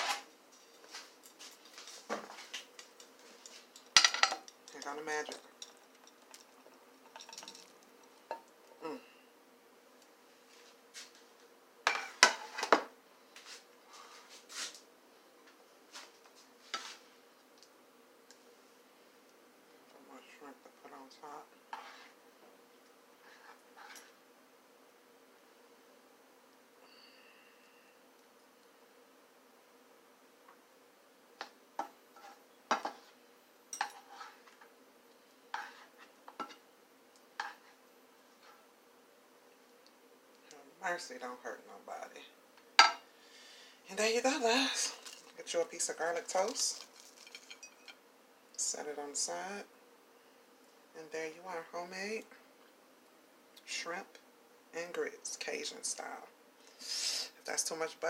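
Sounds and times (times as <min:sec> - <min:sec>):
metal utensil scraping a skillet: 0:00.0 - 0:00.3, 0:21.7 - 0:22.2, 0:32.1 - 0:33.1, 0:33.8 - 0:34.6, 0:35.5 - 0:36.6, 0:37.4 - 0:37.8
utensil clinking and scraping on pan: 0:02.6 - 0:08.5, 0:33.7 - 0:34.6, 0:37.4 - 0:37.7, 0:46.3 - 0:48.0.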